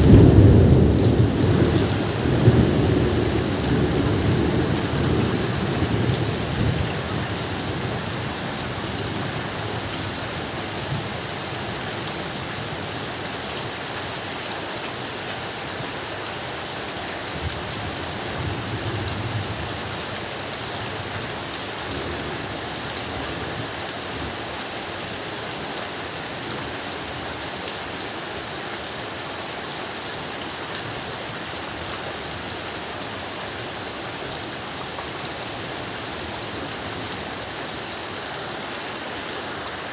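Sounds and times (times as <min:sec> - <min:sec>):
rumble of thunder: 0:00.0 - 0:07.0
steady rain: 0:00.0 - 0:39.9.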